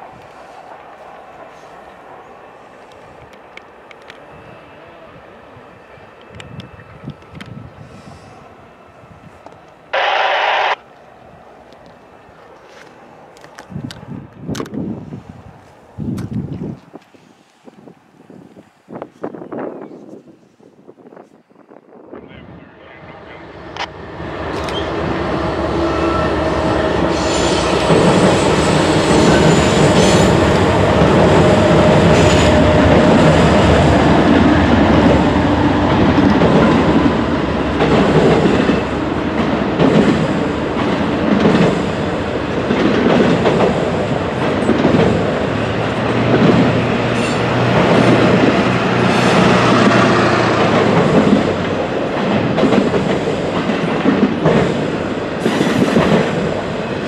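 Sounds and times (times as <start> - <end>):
freight train crossing steel bridge: 0.0 - 57.0
locomotive engine tone: 10.0 - 10.8
train wheels clattering: 26.0 - 56.9.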